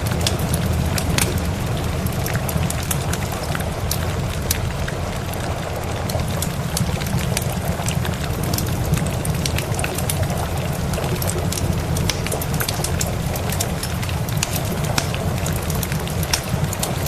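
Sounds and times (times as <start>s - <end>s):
low rumble: 0.0s - 6.4s
rain hissing: 0.0s - 17.0s
wood fire crackling: 0.0s - 17.0s.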